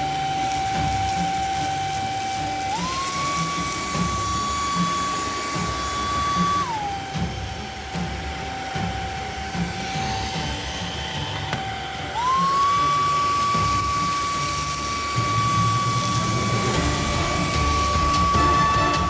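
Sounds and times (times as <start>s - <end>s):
handheld vacuum motor whining: 0.0s - 19.0s.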